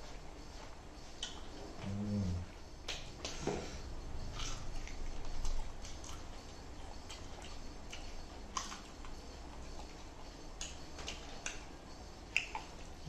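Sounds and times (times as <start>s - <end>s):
chewing and mouth clicks: 1.0s - 1.6s, 4.2s - 13.0s.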